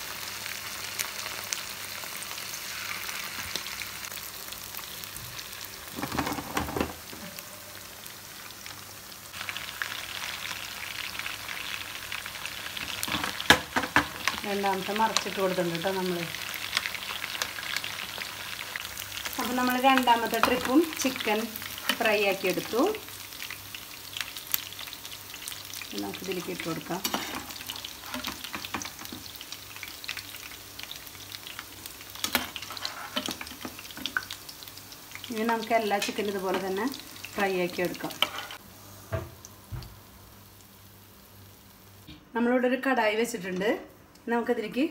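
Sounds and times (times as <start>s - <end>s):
chicken deep-frying sizzle: 0.0s - 42.1s.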